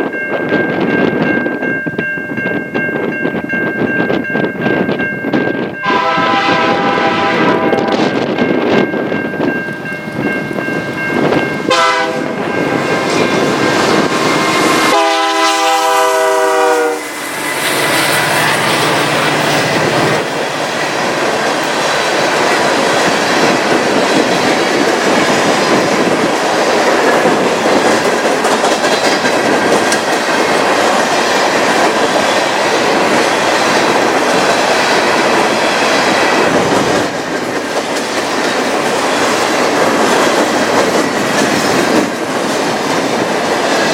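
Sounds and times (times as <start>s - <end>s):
locomotive horn blasts: 5.8s - 8.2s, 11.6s - 13.3s, 14.3s - 17.2s
train wheels clattering past: 10.8s - 43.9s.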